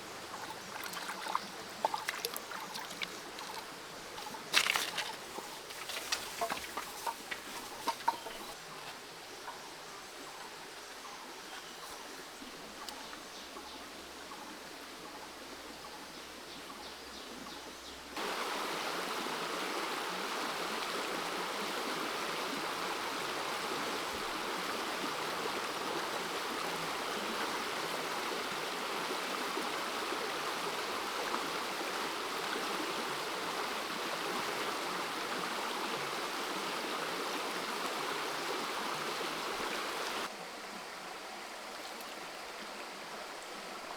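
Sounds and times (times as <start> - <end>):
creek water rushing over rocks: 0.0 - 9.2, 18.2 - 43.9.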